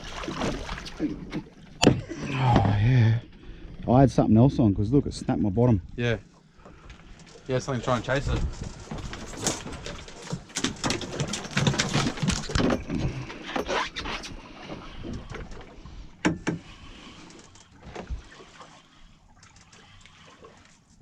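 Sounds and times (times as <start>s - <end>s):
wind and water wash: 0.0s - 2.0s, 14.3s - 21.0s
gear clattering on a boat: 0.3s - 20.9s.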